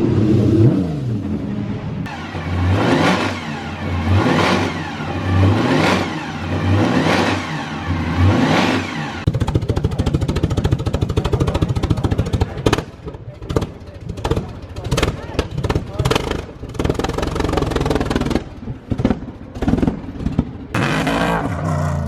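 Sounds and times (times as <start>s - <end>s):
racing engine revving: 0.0s - 12.8s, 20.7s - 22.0s
exhaust bangs: 0.0s - 22.0s.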